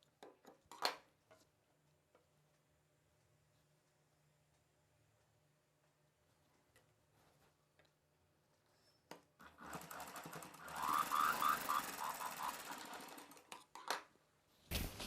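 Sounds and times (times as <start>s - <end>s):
sewing machine stitching: 9.4s - 13.6s.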